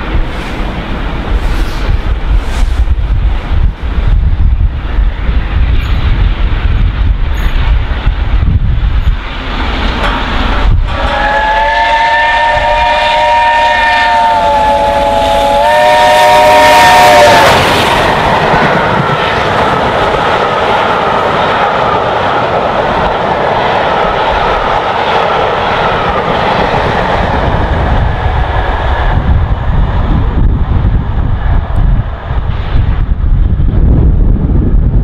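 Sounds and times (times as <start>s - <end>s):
train carriages clattering on rails: 5.6s - 8.3s, 8.9s - 11.2s
steam locomotive chime whistle: 10.9s - 17.6s.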